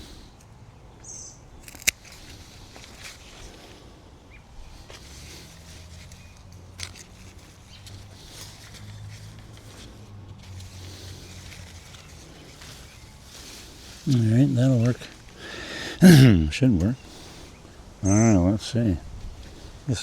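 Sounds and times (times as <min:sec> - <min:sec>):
rustling: 0:01.6 - 0:04.0, 0:04.7 - 0:16.0.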